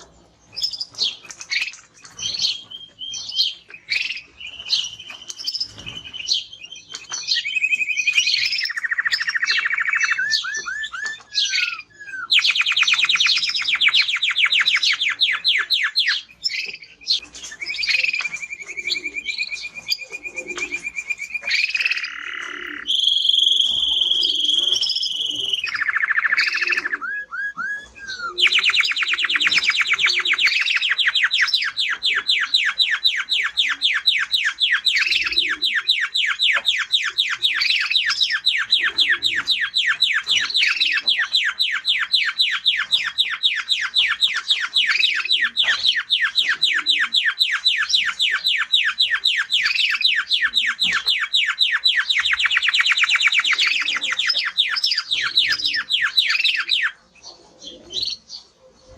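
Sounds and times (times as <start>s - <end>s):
canary singing: 0.0s - 58.9s.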